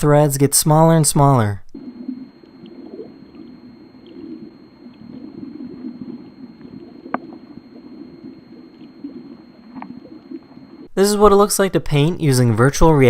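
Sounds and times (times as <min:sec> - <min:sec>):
faint high whine: 0:00.0 - 0:13.0
underwater water rush: 0:01.8 - 0:10.9.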